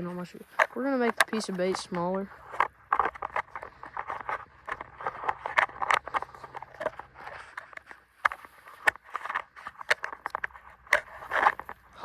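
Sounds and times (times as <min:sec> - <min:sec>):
hands handling fishing tackle: 0:00.0 - 0:12.0.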